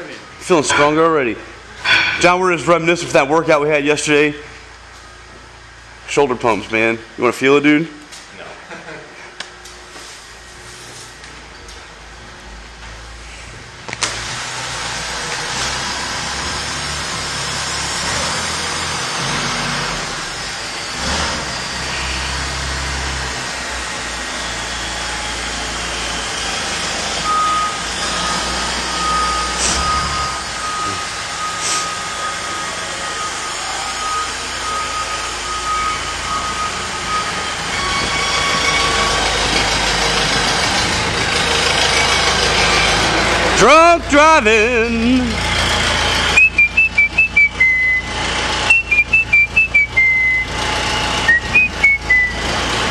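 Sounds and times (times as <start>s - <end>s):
heavy vehicle diesel engine running: 0.0s - 7.3s, 9.5s - 52.9s
backup alarm beeping: 27.2s - 39.7s, 42.0s - 45.6s.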